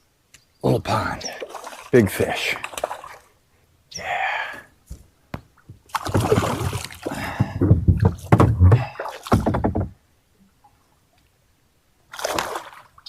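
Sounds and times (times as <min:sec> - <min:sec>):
knocking and bumping on kayak: 0:04.9 - 0:10.0.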